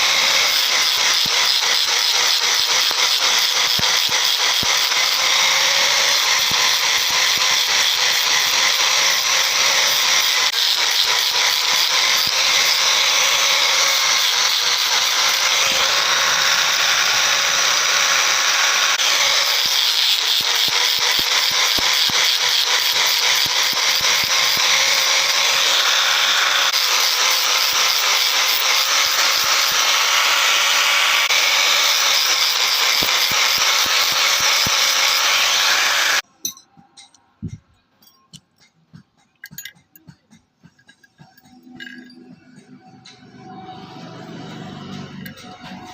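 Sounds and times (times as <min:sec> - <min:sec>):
power tool running on metal: 0:00.0 - 0:36.3, 0:40.7 - 0:45.9.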